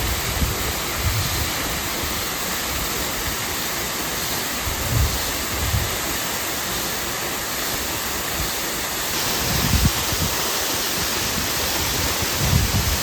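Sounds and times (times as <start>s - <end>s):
flowing water rushing: 0.0s - 13.0s
wind thumps on microphone: 4.8s - 6.0s, 9.3s - 13.0s.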